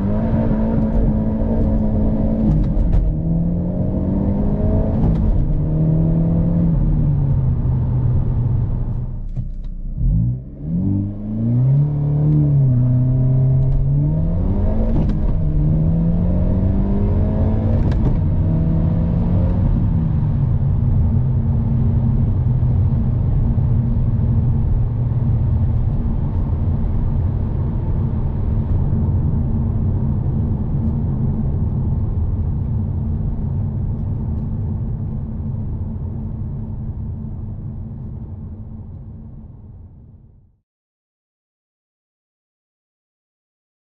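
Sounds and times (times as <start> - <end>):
car engine revving: 0.0 - 26.5.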